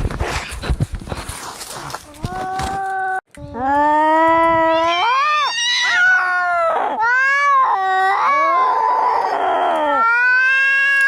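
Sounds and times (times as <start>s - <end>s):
cats yowling: 2.4s - 11.0s
harsh raspy cat yowl: 2.5s - 11.0s.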